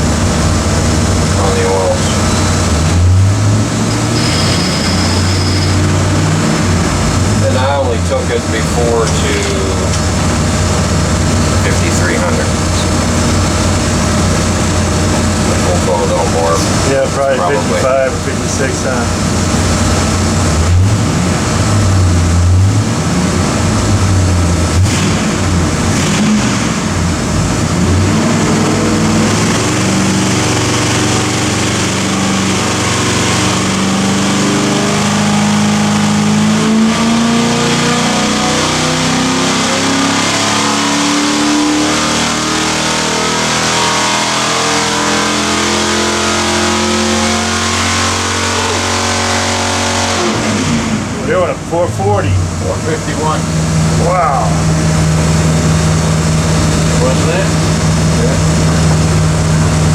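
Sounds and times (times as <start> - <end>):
engine revving on dyno: 0.0 - 59.9.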